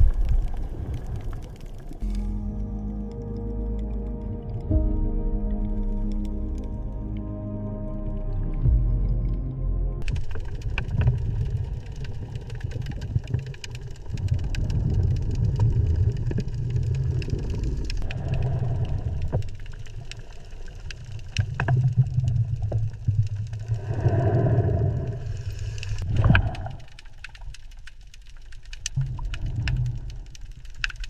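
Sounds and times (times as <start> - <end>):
held musical tones: 2.0 - 10.0.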